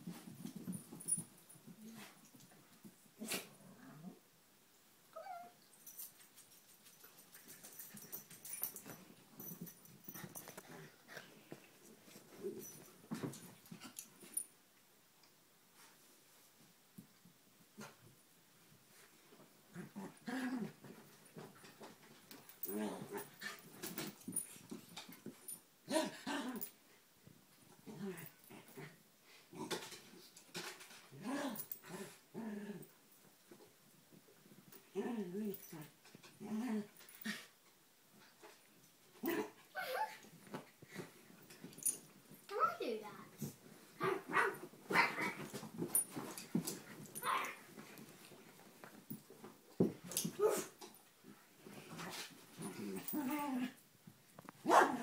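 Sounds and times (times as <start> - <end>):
dogs growling and scuffling: 0.0 - 4.2, 5.8 - 14.5, 17.8 - 42.6, 43.2 - 55.0
dogs growling and whining: 19.7 - 20.9, 31.1 - 32.9, 34.9 - 37.5, 50.1 - 50.8, 51.9 - 53.8.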